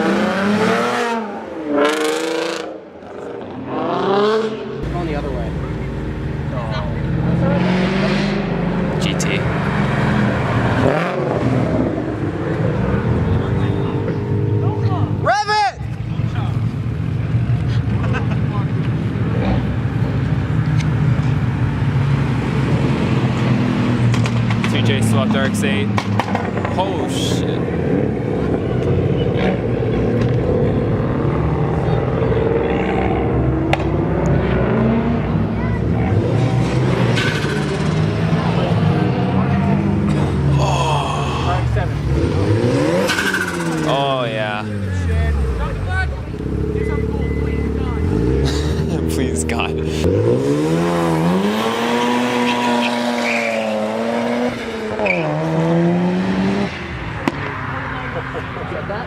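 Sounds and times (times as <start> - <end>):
car engine rumbling: 0.0 - 59.0
tyre squeal: 52.0 - 54.0, 54.9 - 55.5.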